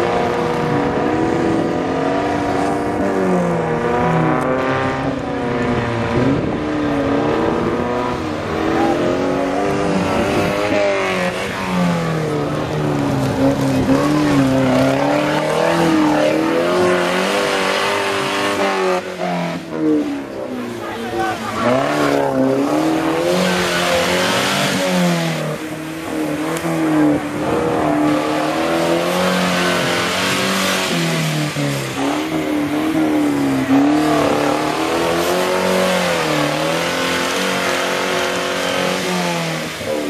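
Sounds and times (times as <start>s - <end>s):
off-road vehicle engines revving: 0.0s - 40.0s.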